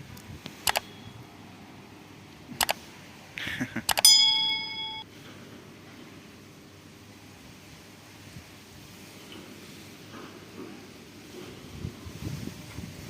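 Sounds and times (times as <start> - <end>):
sharp clicks: 0.2 - 0.9, 2.6 - 2.8, 3.9 - 4.1
bell-like metal clink: 4.0 - 5.0.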